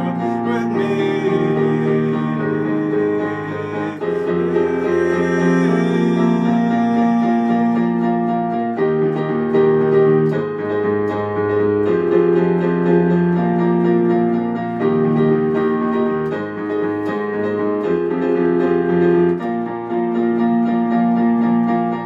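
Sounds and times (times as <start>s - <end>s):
piano playing held chords: 0.0s - 22.0s.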